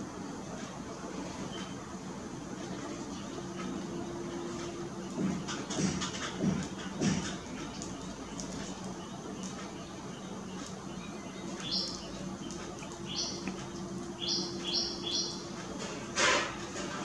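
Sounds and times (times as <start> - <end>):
bird chip calls: 6.9 - 15.7.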